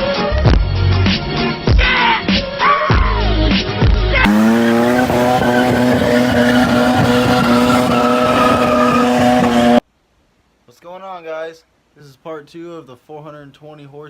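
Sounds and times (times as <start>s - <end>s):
music: 0.0s - 4.3s
car engine revving high: 4.2s - 9.8s.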